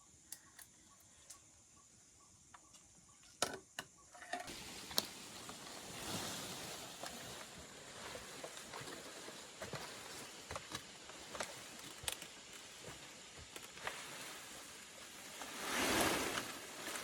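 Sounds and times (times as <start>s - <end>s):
light clicks and crackles: 4.5s - 5.8s, 8.1s - 14.1s
rustling swish: 15.2s - 17.0s.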